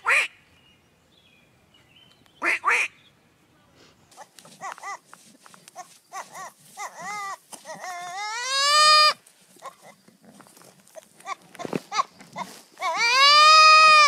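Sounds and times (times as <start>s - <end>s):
young goat bleating: 4.2s - 5.1s, 5.7s - 10.0s, 10.9s - 14.0s.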